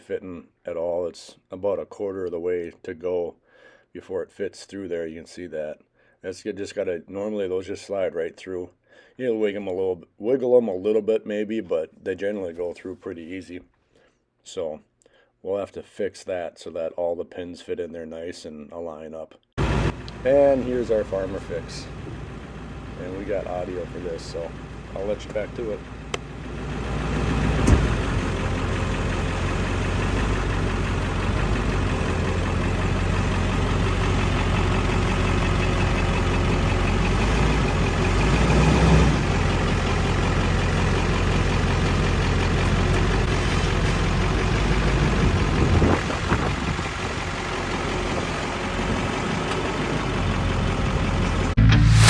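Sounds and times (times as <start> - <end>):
heavy engine running: 19.6 - 52.0.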